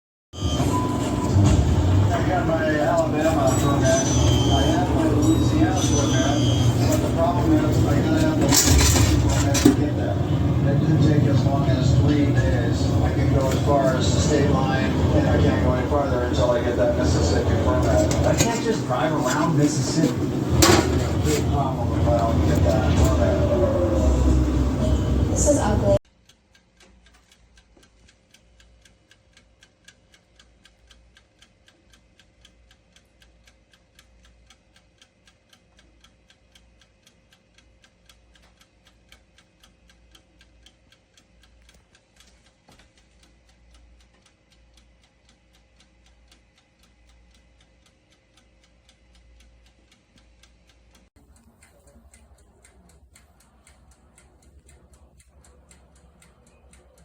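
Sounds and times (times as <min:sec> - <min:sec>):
mechanical timer ticking: 0:24.9 - 0:57.0.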